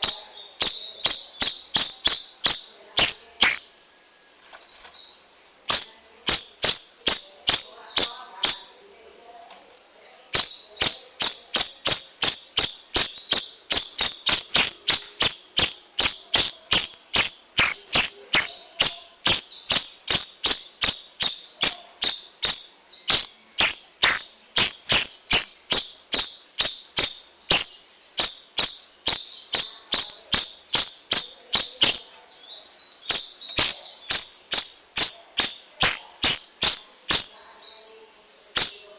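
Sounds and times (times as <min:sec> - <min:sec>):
bird calling sharp chip notes: 0:10.4 - 0:32.1.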